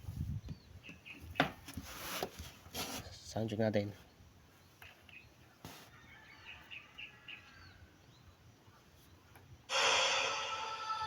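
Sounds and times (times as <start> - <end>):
loud hissy wash: 9.7 - 11.0.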